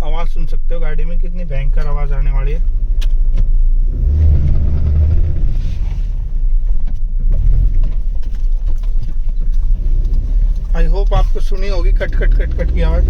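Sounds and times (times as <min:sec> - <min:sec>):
car rumble: 0:00.0 - 0:13.0
rapid clicking from car front: 0:06.6 - 0:13.0.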